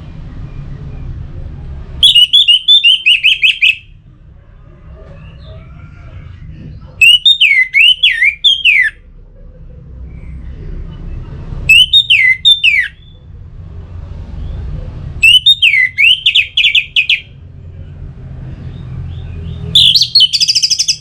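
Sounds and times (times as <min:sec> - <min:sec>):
thrush singing whistled phrases: 0:02.0 - 0:04.0, 0:07.0 - 0:09.0, 0:11.6 - 0:13.2, 0:15.2 - 0:17.4, 0:19.7 - 0:21.0
low background rumble: 0:03.8 - 0:07.0.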